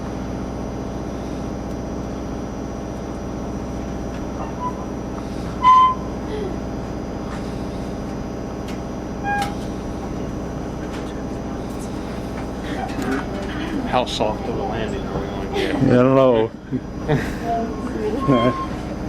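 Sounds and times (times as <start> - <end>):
train rumbling: 2.8 - 19.0
short high squeaks: 4.4 - 6.2, 9.2 - 9.7, 17.7 - 19.0.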